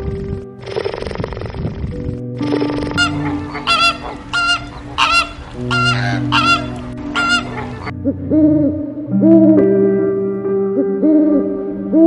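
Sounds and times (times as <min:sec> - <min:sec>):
steady low drone: 0:00.0 - 0:12.0
flamingos honking: 0:02.4 - 0:07.9
lower bird call: 0:02.4 - 0:08.5.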